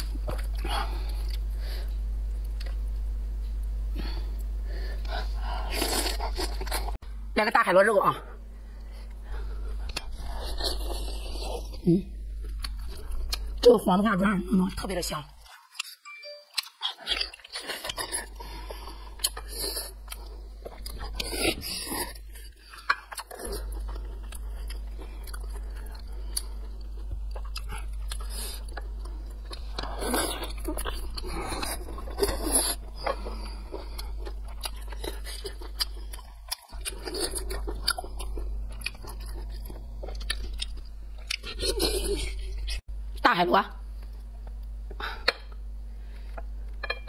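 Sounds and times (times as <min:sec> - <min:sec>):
wet crunchy chewing: 0:16.6 - 0:42.8.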